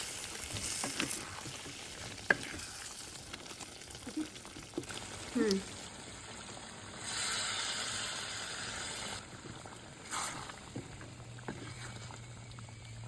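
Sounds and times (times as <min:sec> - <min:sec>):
liquid hissing in hot pan: 0:00.0 - 0:09.3, 0:09.9 - 0:10.8.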